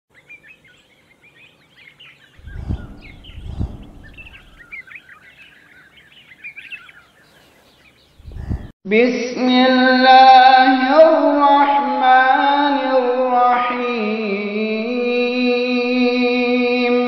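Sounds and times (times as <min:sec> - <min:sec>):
birds chirping and singing: 0:00.1 - 0:08.7
low thumps: 0:02.4 - 0:04.7, 0:08.2 - 0:08.7.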